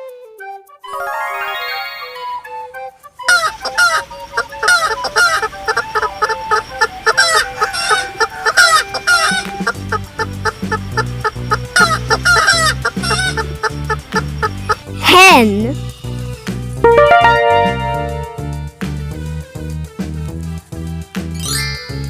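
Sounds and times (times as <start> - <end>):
hens clucking: 3.3 - 15.0.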